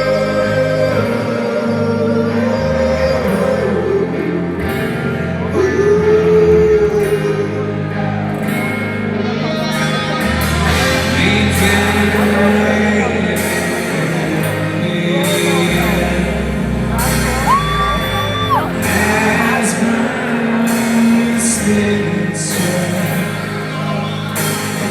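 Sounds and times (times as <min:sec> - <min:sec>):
slow rock band with guitar: 0:00.0 - 0:24.9
person singing drawn-out vocals: 0:10.8 - 0:23.4.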